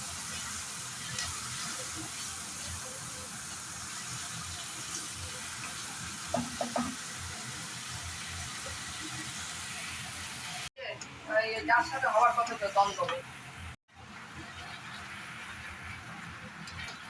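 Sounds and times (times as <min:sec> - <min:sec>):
food sizzling in oil: 0:00.0 - 0:10.7, 0:11.3 - 0:17.0.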